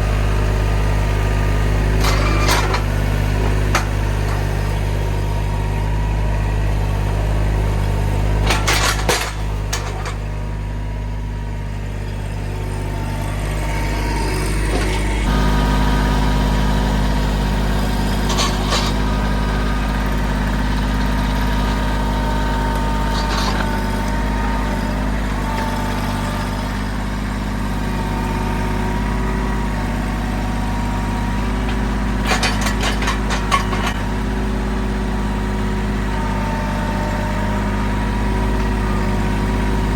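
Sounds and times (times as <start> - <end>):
tractor diesel engine running: 0.0 - 39.9
short metallic clatters: 2.0 - 4.6, 8.4 - 10.3, 18.2 - 19.0, 23.0 - 24.1, 31.6 - 34.0.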